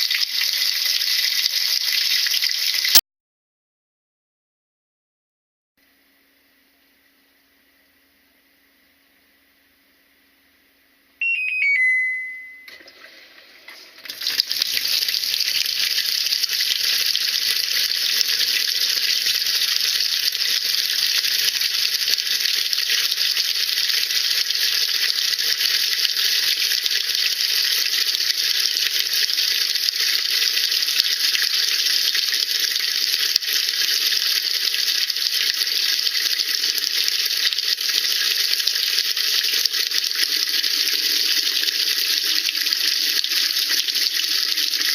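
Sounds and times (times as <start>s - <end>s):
washing machine beeps: 11.2s - 12.9s.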